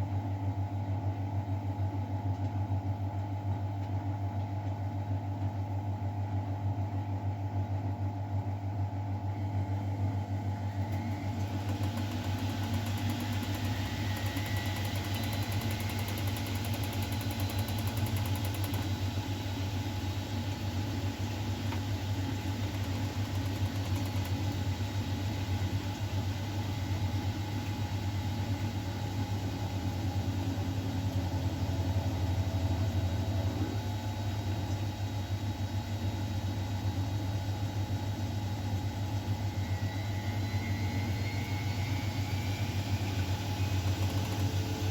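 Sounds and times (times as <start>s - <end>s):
washing machine motor hum: 0.0s - 44.9s
faint whine: 39.3s - 43.4s.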